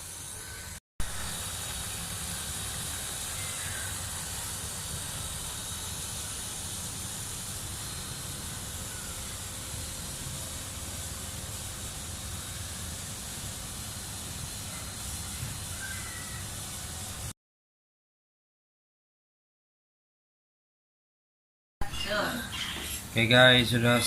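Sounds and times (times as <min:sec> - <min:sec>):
motor humming with hiss: 0:00.0 - 0:17.3.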